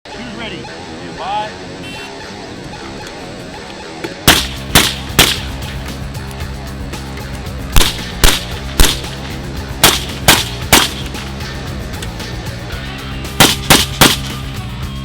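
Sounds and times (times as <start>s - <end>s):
music: 0.1s - 15.0s
gunshots: 4.2s - 5.9s, 7.7s - 11.4s, 13.4s - 14.6s.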